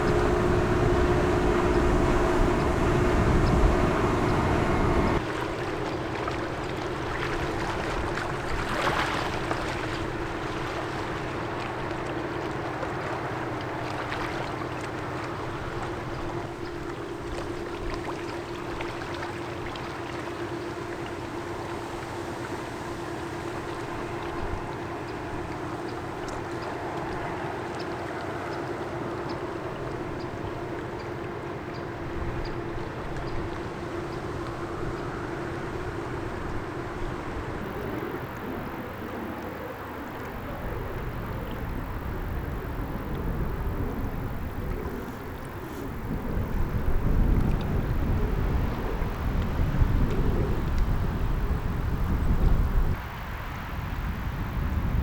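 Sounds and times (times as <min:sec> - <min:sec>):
held tone: 0:00.0 - 0:05.2
low rumble: 0:00.0 - 0:05.2
ship engine hum: 0:00.0 - 0:08.5, 0:09.2 - 0:55.0.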